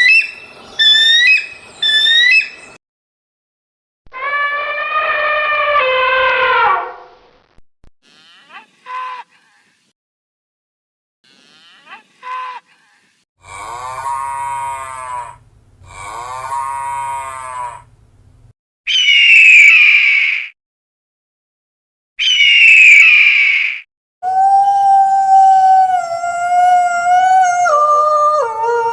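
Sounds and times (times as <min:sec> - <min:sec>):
animal calls: 0:00.0 - 0:02.6, 0:13.4 - 0:17.9, 0:18.9 - 0:20.5, 0:22.2 - 0:23.8.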